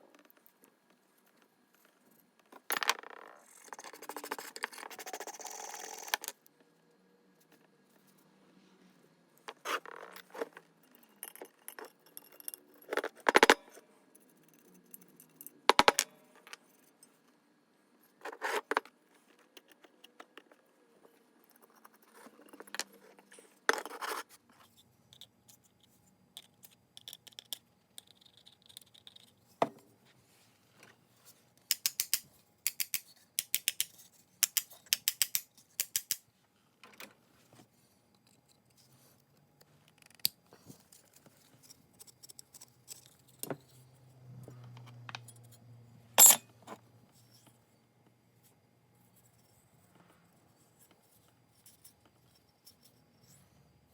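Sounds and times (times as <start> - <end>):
metal parts clinking and scraping: 46.2 - 46.5.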